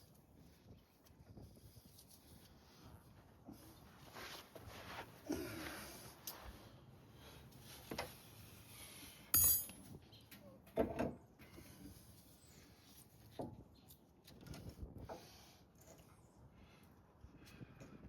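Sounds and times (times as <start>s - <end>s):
metal tools clanking: 9.4s - 9.9s.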